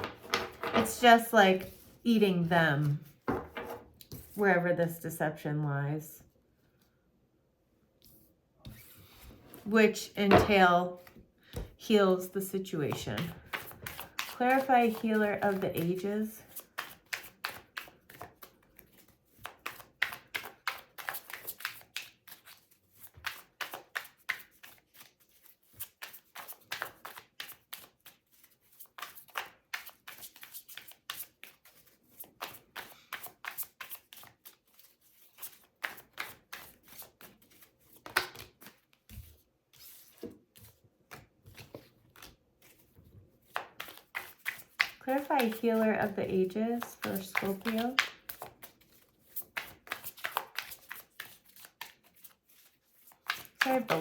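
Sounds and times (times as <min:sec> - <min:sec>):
cards being shuffled by hand: 0:12.9 - 0:54.0.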